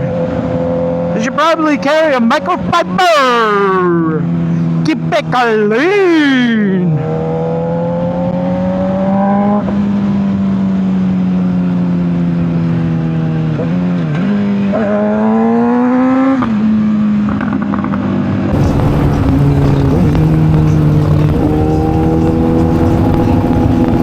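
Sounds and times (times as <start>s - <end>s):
motorcycle engine running: 18.5s - 24.0s
wind noise: 18.5s - 24.0s.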